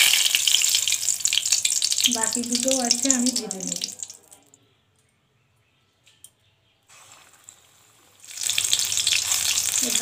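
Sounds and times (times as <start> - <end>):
food sizzling in hot oil: 0.0 - 4.2, 6.9 - 10.0.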